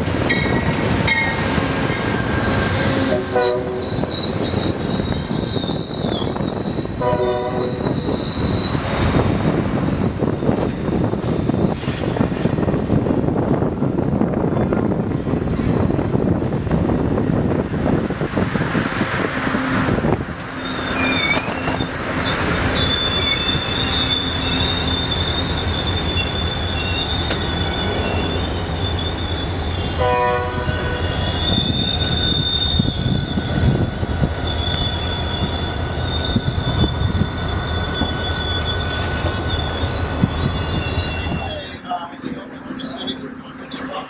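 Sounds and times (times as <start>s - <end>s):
wheels squealing on rails: 0.0s - 14.9s, 19.0s - 44.0s
train low rumble: 0.0s - 44.0s
train horn: 3.0s - 4.0s, 7.0s - 8.0s, 30.0s - 31.1s.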